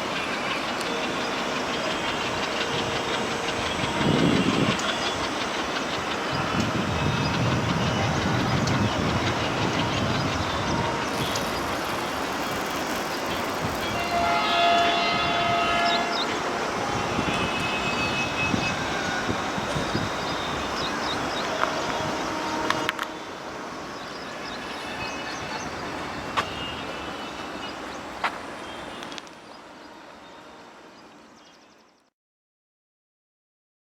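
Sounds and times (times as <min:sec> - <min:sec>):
train wheels clattering over rail joints: 0:00.0 - 0:26.6.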